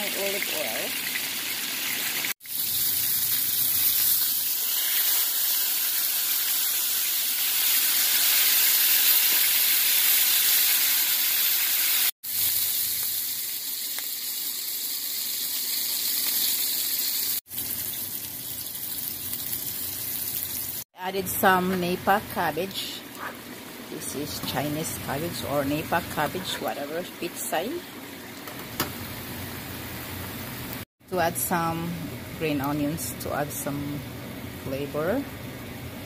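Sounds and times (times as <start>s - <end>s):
fish sizzling in a pan: 0.0s - 20.9s.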